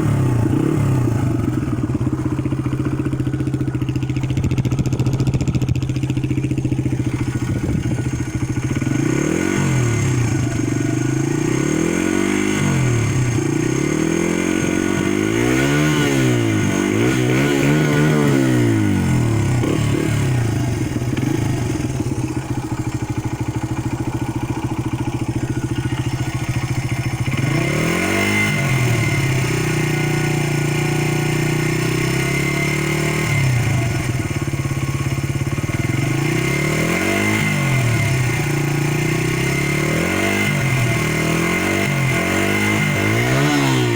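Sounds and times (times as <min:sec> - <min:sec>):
motorcycle engine idling and revving: 0:00.0 - 0:43.9.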